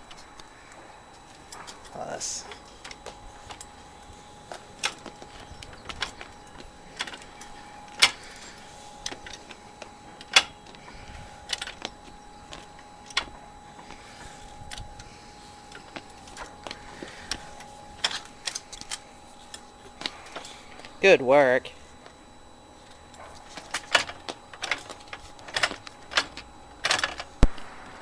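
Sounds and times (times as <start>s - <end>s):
faint steady tone: 0.0s - 28.0s.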